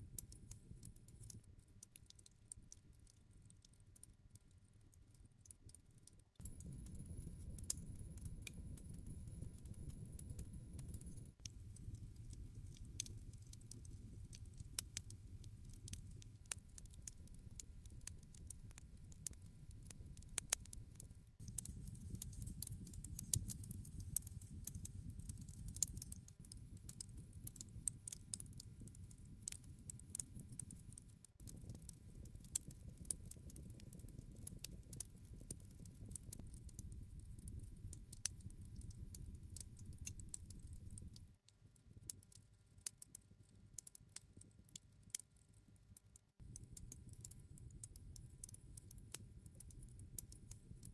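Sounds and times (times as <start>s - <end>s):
fire crackling and popping: 1.9s - 42.3s, 46.3s - 50.9s
campfire flames rumbling: 11.5s - 16.3s, 31.4s - 41.2s.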